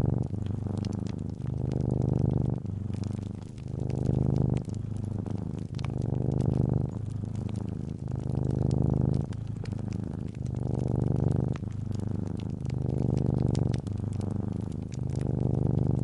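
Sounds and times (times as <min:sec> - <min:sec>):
cat purring: 0:00.0 - 0:16.0
wood fire crackling: 0:00.0 - 0:16.0.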